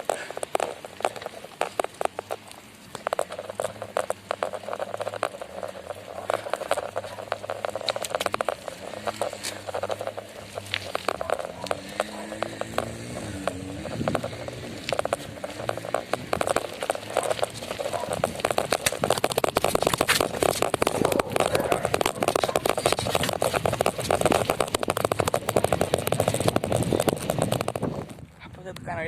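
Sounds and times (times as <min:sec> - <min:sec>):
bicycle tyre crunching: 0:00.0 - 0:28.8
bicycle clicks and rattles: 0:00.0 - 0:29.0.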